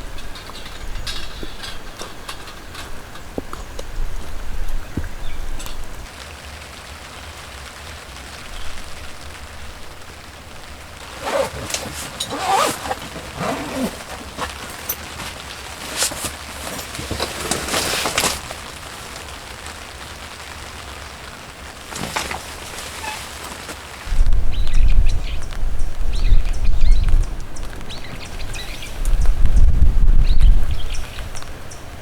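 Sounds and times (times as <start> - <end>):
rain falling: 1.6 - 24.1
rustling and clicking: 11.0 - 20.6, 21.5 - 24.1.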